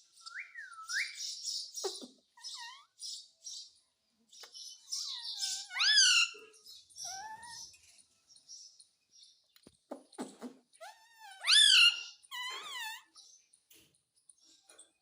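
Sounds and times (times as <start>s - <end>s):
parrot chattering: 1.8s - 2.9s, 9.9s - 13.2s.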